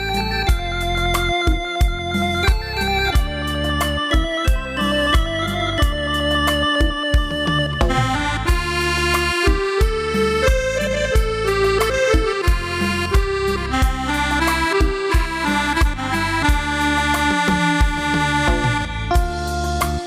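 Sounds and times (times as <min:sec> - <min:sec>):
keyboard playing accordion-like melody: 0:00.0 - 0:20.0.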